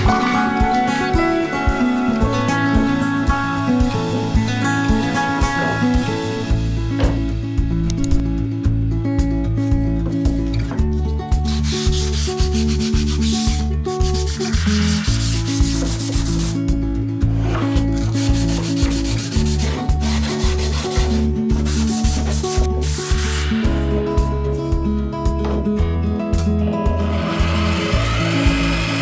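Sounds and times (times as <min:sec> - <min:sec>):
background music with beat: 0:00.0 - 0:29.0
sanding: 0:00.9 - 0:06.5, 0:11.5 - 0:16.6, 0:17.4 - 0:23.5.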